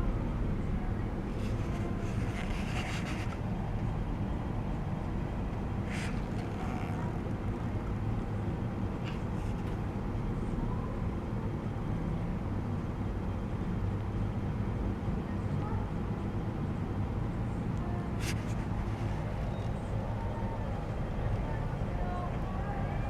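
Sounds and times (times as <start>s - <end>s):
low background rumble: 0.0s - 23.0s
faint rustles: 1.2s - 10.0s, 17.4s - 22.5s.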